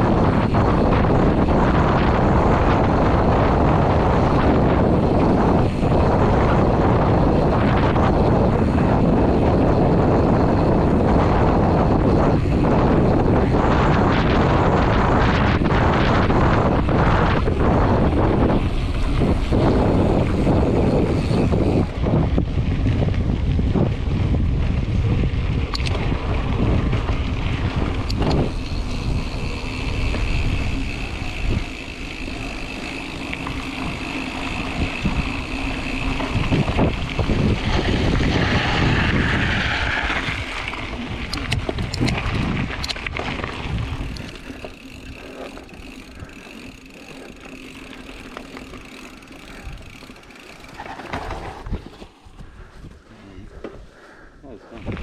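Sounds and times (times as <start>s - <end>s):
bike clicks and rattles: 0.0s - 53.9s, 54.8s - 55.0s
bike tyres on dirt trail: 0.0s - 55.0s
wind buffeting microphone: 0.0s - 55.0s.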